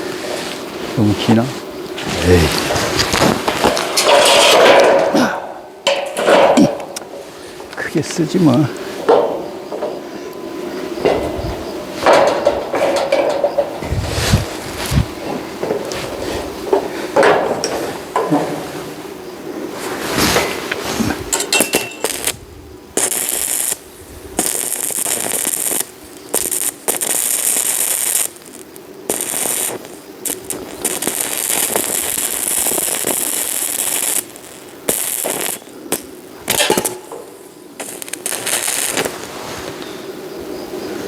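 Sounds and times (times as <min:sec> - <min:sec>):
welding arc crackling: 0:00.0 - 0:09.9, 0:19.9 - 0:39.8.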